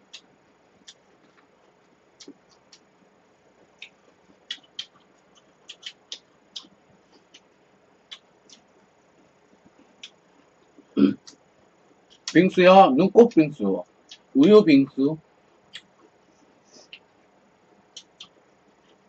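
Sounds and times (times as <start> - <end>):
mouth chewing clicks and smacks: 0.1 - 2.9, 3.8 - 8.8, 9.7 - 11.4, 12.1 - 12.4, 14.0 - 14.3, 15.7 - 16.2, 17.9 - 19.0.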